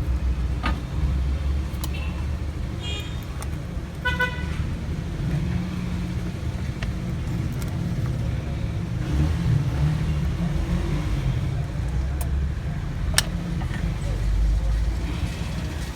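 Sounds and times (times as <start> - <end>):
road traffic rumble: 0.0 - 15.9
car horn toot: 4.0 - 4.6.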